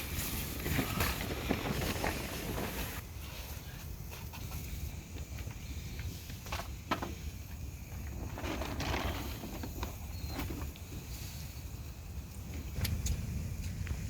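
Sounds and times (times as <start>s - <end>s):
wind buffeting microphone: 7.3s - 14.0s.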